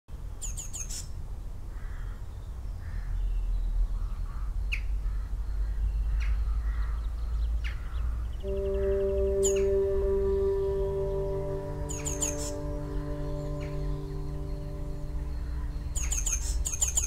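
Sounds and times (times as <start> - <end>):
birds calling: 4.0 - 17.0
steady low rumble: 8.4 - 17.0
sustained musical tones: 8.4 - 17.0.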